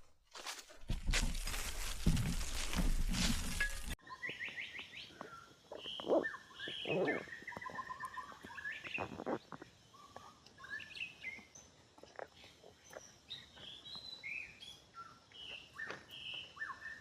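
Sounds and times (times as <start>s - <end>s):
loud rustling and crunching: 0.0s - 4.0s
soft rustles: 0.0s - 4.0s
wild birds chirping and trilling: 2.6s - 17.0s.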